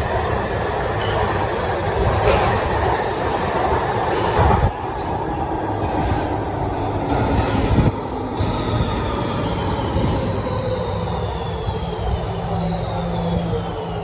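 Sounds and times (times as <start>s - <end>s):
metro train rumbling on rails: 0.0s - 14.0s
faint train whine: 1.9s - 14.0s.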